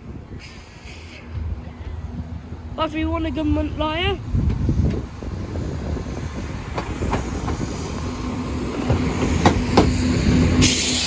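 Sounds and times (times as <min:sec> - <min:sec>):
train rumble: 0:00.0 - 0:11.0
train wheels clicking over rail joints: 0:04.4 - 0:11.0
burst of hiss: 0:10.6 - 0:11.0.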